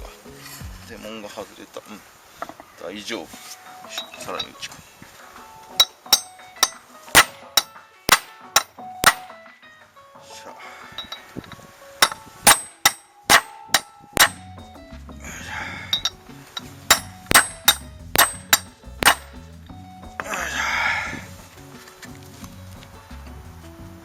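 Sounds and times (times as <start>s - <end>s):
hammer clanging on metal socket: 5.8s - 9.4s, 12.0s - 14.5s, 16.9s - 19.4s.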